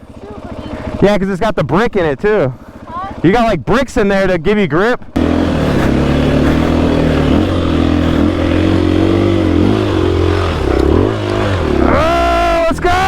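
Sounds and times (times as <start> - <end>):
dirt bike engine running: 0.0 - 4.0, 5.0 - 13.0.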